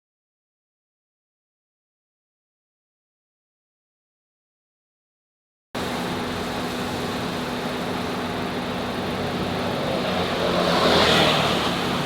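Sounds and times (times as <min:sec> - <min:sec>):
car engine hum: 0:05.8 - 0:12.0
road and wind noise: 0:05.8 - 0:12.0.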